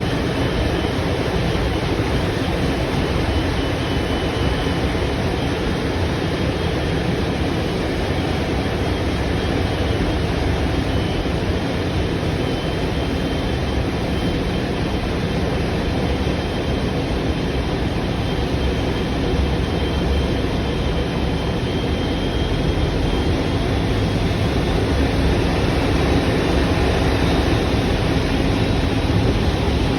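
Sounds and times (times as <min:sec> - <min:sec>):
rushing wind-like noise: 0:00.0 - 0:29.9
loud engine rumble: 0:19.7 - 0:29.9.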